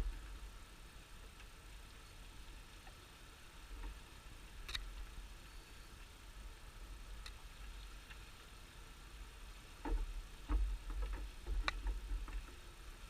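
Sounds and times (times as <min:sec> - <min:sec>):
wooden beehive parts clicking: 0:09.8 - 0:12.6.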